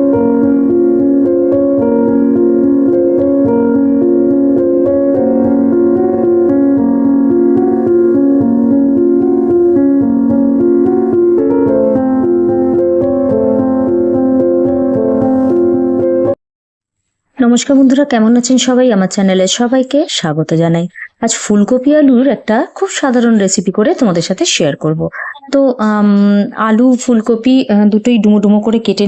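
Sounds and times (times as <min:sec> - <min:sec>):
piano background music: 0:00.0 - 0:16.4.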